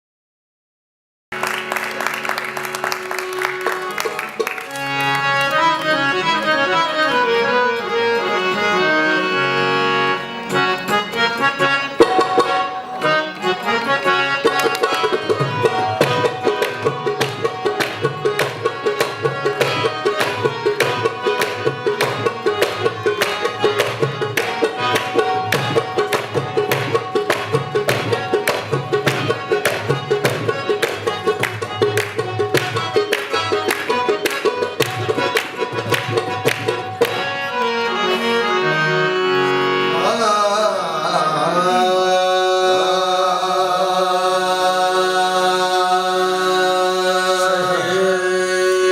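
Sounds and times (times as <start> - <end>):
harmonium melody: 1.3 - 48.9
tabla beat: 10.5 - 38.2.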